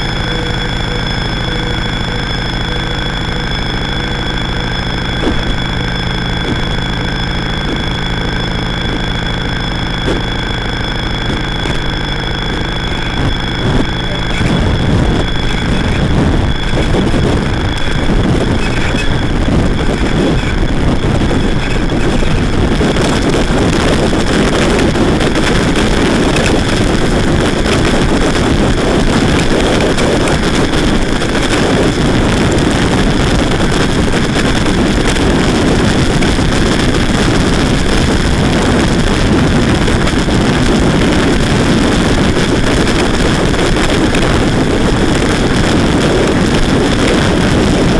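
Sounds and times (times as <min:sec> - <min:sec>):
thin high tone: 0:00.0 - 0:33.7
distorted noise drone and hiss: 0:00.0 - 0:47.9.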